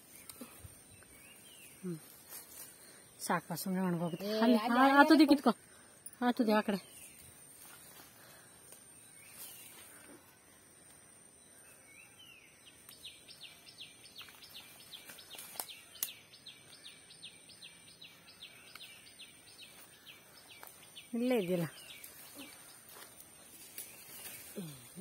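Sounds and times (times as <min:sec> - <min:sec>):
bird chirping: 0:11.3 - 0:25.0.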